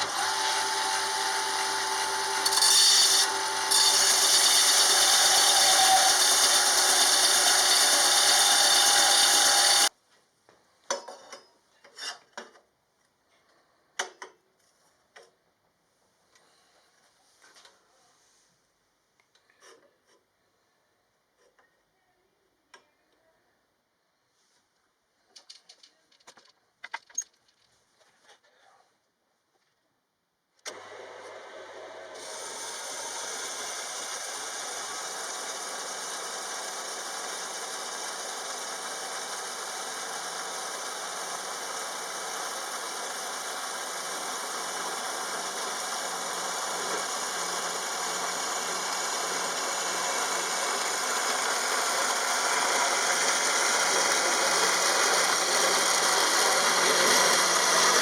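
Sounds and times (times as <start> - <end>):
steady mechanical noise: 32.2 - 58.0.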